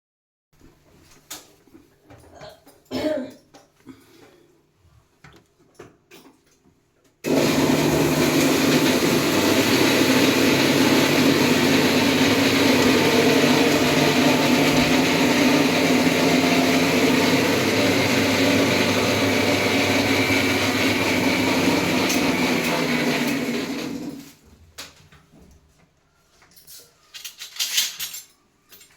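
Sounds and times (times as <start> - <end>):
water pump humming: 7.3 - 24.2.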